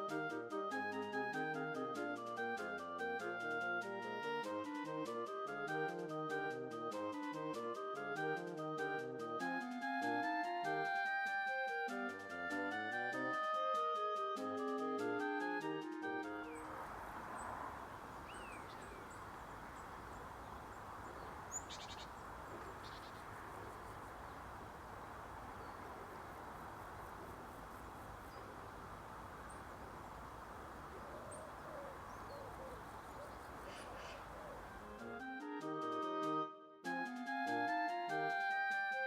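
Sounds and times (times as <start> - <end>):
outdoor background hiss: 0.0 - 39.0
bird calls and chirps: 16.4 - 24.8, 25.4 - 34.9.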